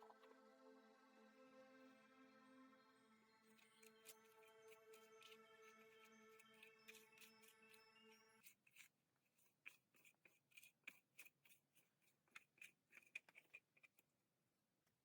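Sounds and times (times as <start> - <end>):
background music: 0.0 - 8.5.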